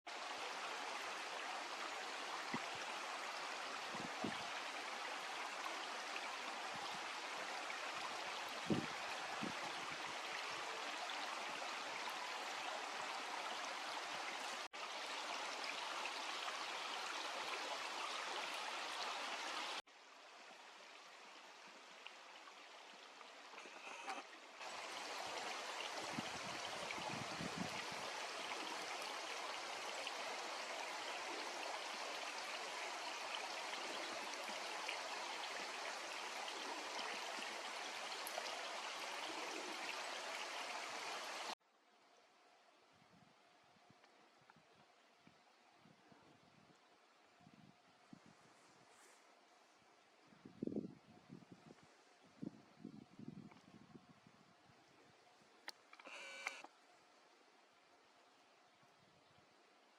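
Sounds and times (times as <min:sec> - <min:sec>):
mountain stream rushing: 0:00.1 - 0:41.6.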